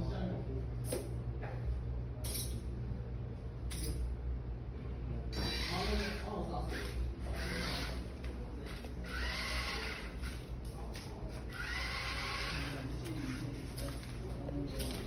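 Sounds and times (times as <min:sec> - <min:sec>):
steady low hum: 0:00.0 - 0:15.0
small electric motors whirring: 0:05.4 - 0:10.6, 0:11.4 - 0:14.0.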